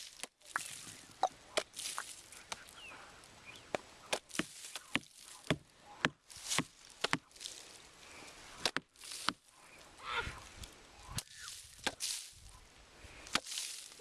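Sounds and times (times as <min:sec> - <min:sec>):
rustling: 0:00.0 - 0:14.0
sharp knocks and scuffs: 0:03.7 - 0:07.3.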